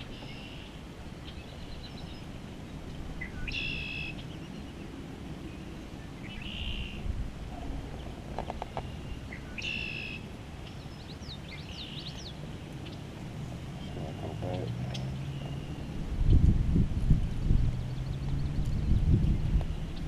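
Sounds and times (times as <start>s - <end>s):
low outdoor rumble: 0.0s - 20.0s
songbird buzzy phrase: 13.8s - 15.8s.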